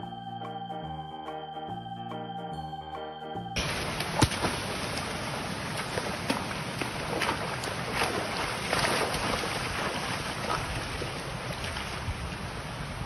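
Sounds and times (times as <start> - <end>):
wind on microphone: 3.6 - 13.0.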